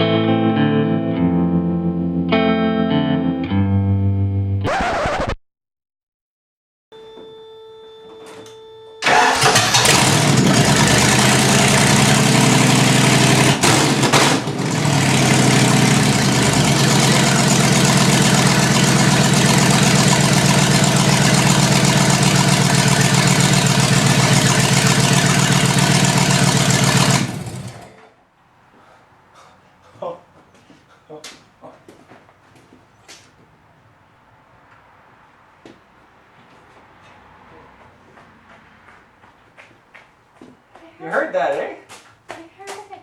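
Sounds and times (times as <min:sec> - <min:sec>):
car engine starting and running: 0:09.0 - 0:28.1.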